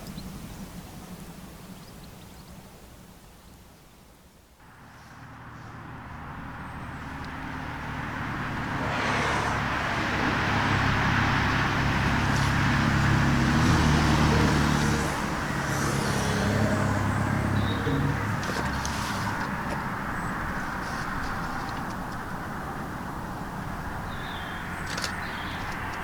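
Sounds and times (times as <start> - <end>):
passing vehicle humming: 4.6 - 26.0.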